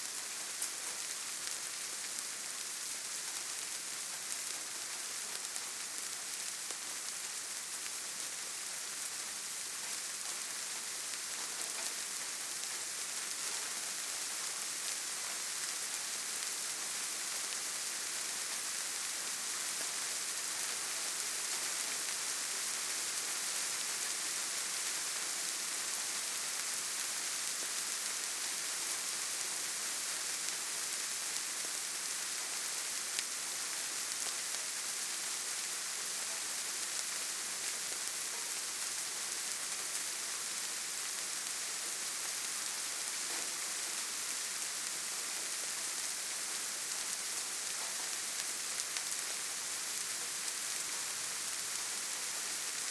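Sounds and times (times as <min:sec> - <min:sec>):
rain pattering on surfaces: 0:00.0 - 0:52.9.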